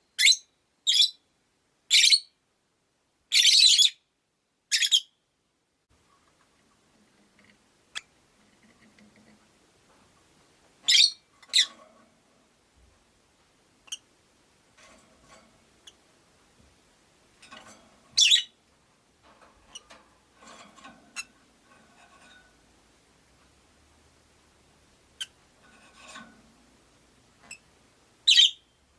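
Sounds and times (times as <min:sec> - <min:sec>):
lovebirds chirping: 0:00.0 - 0:01.2, 0:10.8 - 0:11.8, 0:18.1 - 0:18.6, 0:27.4 - 0:28.8
scratching and rustling: 0:06.0 - 0:13.1, 0:14.7 - 0:23.6, 0:25.4 - 0:27.7.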